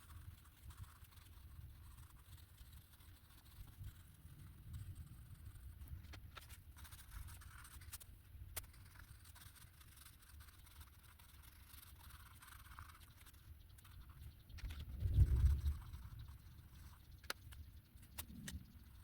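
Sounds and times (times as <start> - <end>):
pen scratching on paper: 0.0 - 19.0
low rumble: 14.6 - 16.9.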